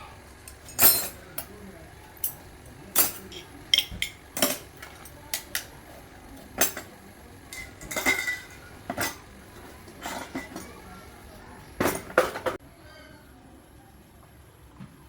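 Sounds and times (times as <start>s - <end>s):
metal parts and tools clinking: 0.6s - 1.5s, 7.5s - 9.3s.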